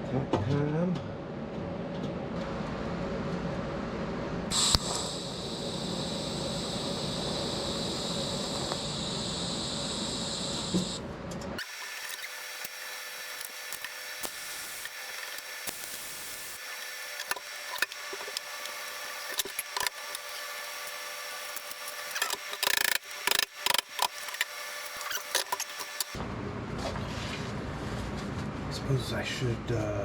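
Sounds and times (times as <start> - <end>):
welding arc hissing and crackling: 4.5 - 11.0, 11.6 - 26.2.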